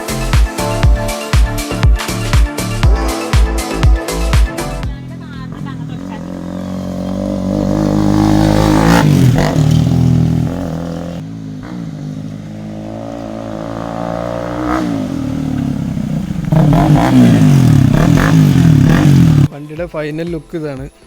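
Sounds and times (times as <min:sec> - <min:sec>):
motorcycle engine revving: 0:04.7 - 0:19.5.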